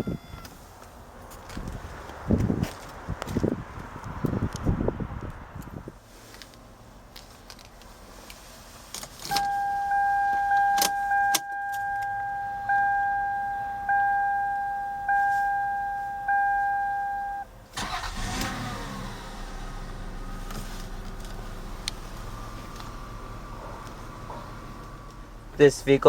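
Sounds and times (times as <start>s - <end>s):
car warning chime: 9.3s - 18.2s
car engine cranking and idling: 16.0s - 26.0s.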